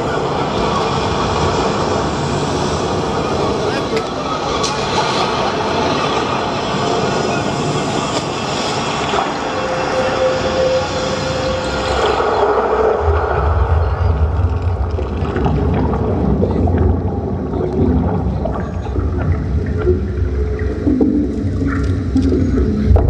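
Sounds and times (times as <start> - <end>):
deep rumble: 5.0 - 23.0.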